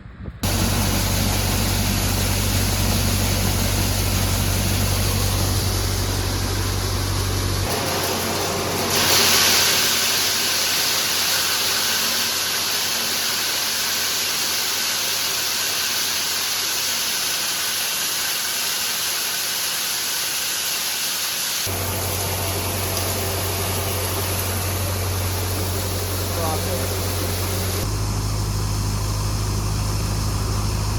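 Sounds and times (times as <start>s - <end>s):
low engine-like drone: 0.0s - 9.2s, 21.7s - 30.9s
loud hissing rush: 0.4s - 30.9s.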